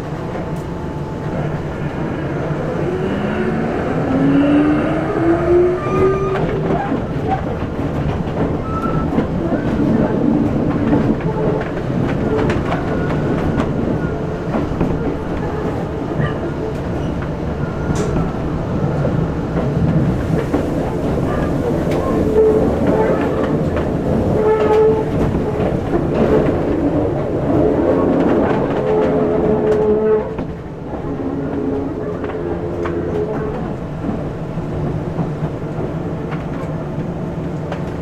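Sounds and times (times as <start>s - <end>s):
train rumble: 0.0s - 38.0s
electric train motor whine: 0.3s - 6.8s.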